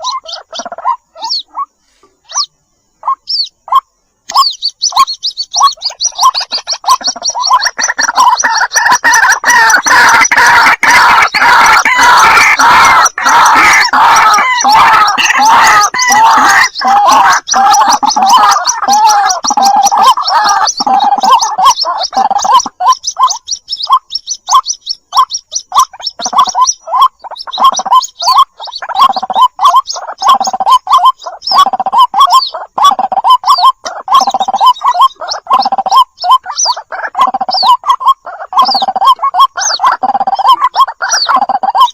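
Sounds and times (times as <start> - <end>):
waterhen calls: 0.0 - 41.9.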